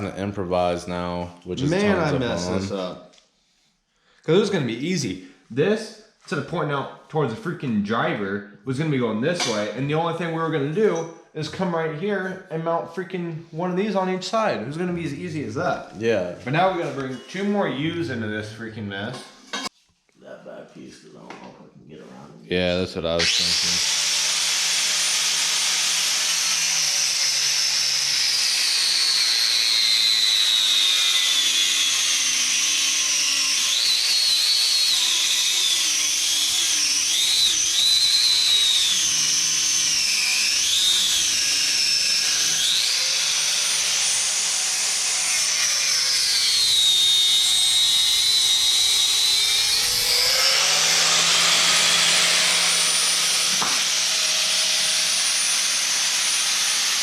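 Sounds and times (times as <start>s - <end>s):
power tool cutting metal tubing: 1.6s - 2.9s, 9.3s - 9.8s, 23.1s - 57.0s.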